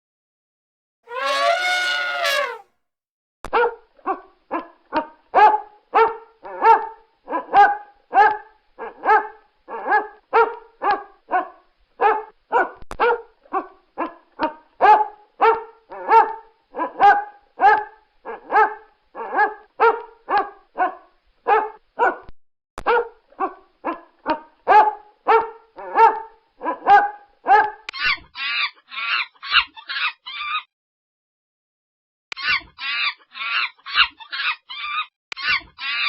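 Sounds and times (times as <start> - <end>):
dog barking: 5.4 - 14.2, 14.8 - 22.3, 22.9 - 24.1, 24.7 - 27.8.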